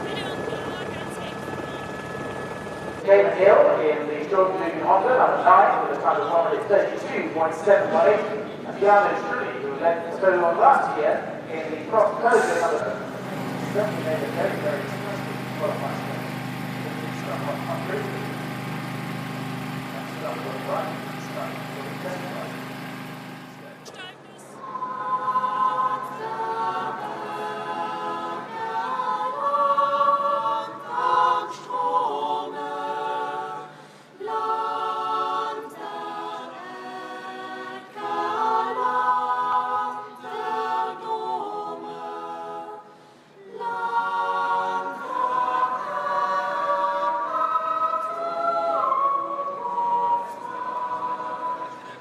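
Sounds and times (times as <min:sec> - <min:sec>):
choir singing held chords: 0:00.0 - 0:23.8, 0:24.4 - 0:52.0.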